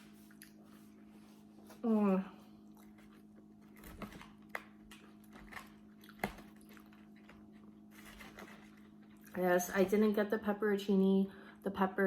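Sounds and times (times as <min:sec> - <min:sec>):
person chewing food: 0:00.0 - 0:01.8, 0:02.4 - 0:09.4
steady low hum: 0:00.0 - 0:12.0.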